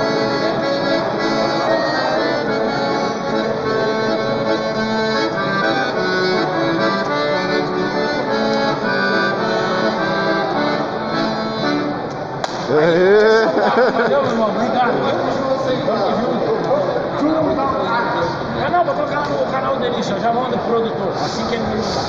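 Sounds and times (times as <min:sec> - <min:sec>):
accordion playing lively tune: 0:00.0 - 0:12.4.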